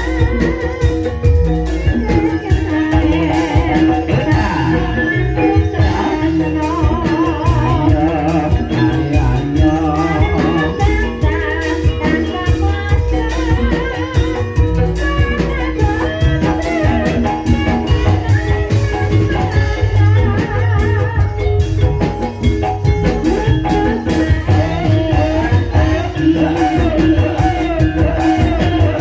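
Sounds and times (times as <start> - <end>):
drum and gamelan percussion: 0.0 - 29.0
person singing with vibrato: 0.0 - 29.0.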